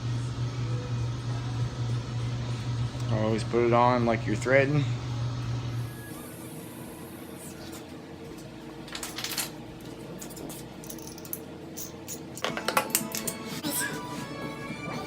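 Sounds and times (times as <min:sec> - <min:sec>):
steady low hum: 0:00.0 - 0:08.9
metal parts clinking: 0:10.2 - 0:13.4.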